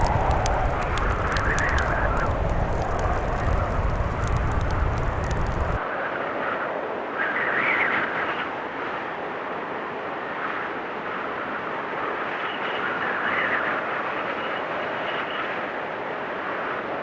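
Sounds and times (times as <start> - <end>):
blizzard wind blowing: 0.0 - 5.8
low rumbling: 0.0 - 5.8.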